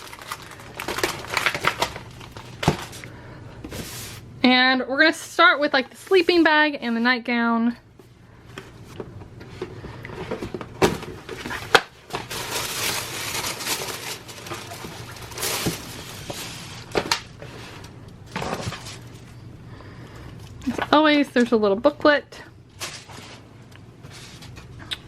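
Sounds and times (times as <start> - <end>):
packaging rustling: 0.0 - 3.1, 10.2 - 19.4.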